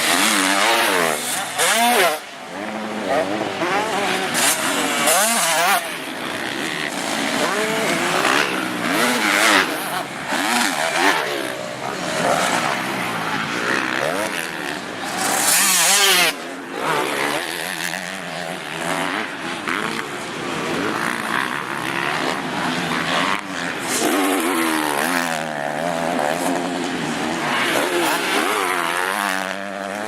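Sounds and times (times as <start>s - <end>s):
motocross engines revving: 0.0s - 30.0s.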